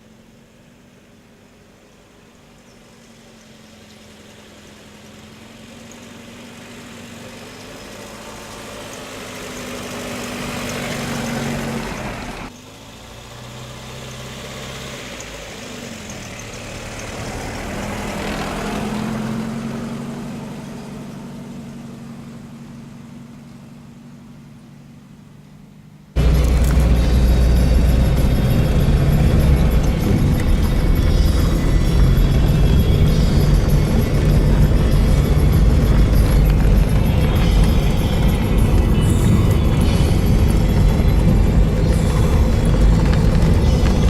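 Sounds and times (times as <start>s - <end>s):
car driving past: 16.0s - 22.6s, 26.2s - 44.0s.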